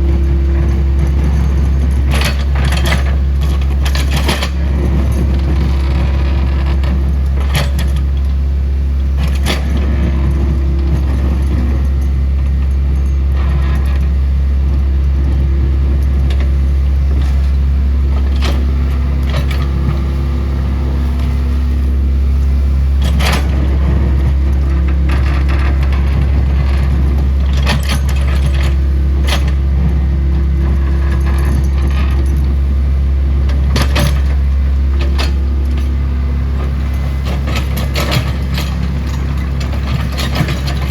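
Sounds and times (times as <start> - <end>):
metallic clanks and rattles: 0.0 - 8.4, 15.2 - 22.1, 23.0 - 32.6, 33.4 - 40.9
excavator diesel engine running: 0.0 - 40.9.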